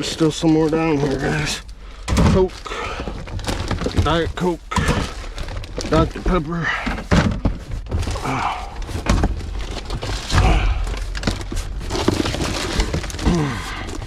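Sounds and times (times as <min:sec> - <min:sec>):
rustling bags: 0:00.0 - 0:14.0
knocks and clunks in dumpster: 0:02.0 - 0:05.3.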